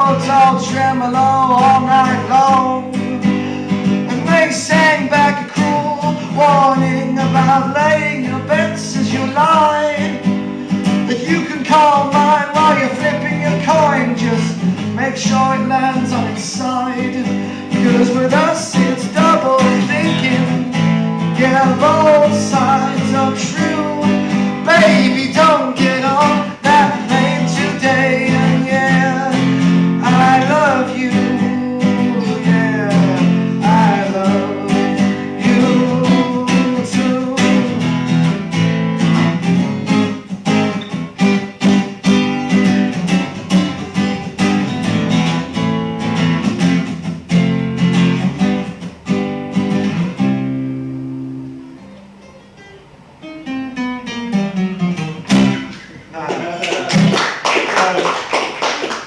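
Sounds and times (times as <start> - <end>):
person singing wordless melody: 0.0 - 10.3, 11.0 - 38.0
picked guitar notes: 0.0 - 57.3
acoustic guitar strumming: 0.0 - 57.4.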